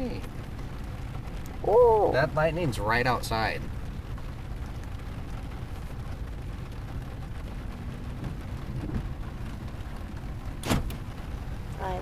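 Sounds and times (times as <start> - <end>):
heavy rain on car roof: 0.0 - 12.0
low rumble: 0.0 - 12.0.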